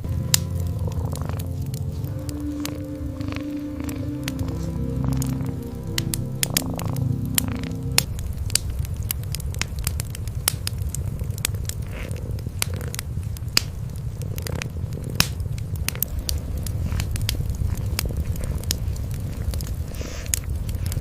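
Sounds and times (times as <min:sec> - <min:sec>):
cats purring: 0:00.0 - 0:21.0
wood fire crackling: 0:00.0 - 0:21.0.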